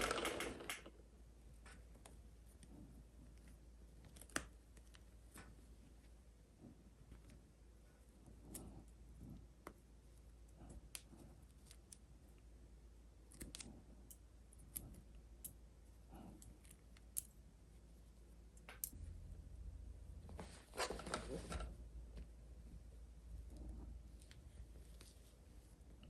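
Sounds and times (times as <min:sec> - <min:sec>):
plastic toy pieces clicking: 0:00.0 - 0:00.9.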